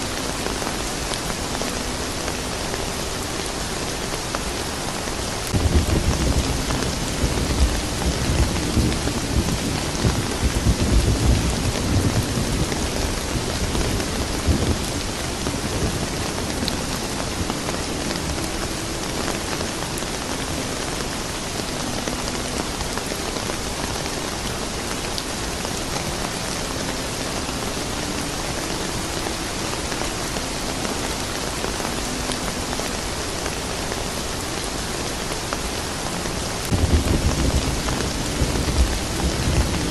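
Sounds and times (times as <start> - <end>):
steady rain falling: 0.0 - 39.9
thunder rumbling: 5.4 - 19.8, 36.6 - 39.9.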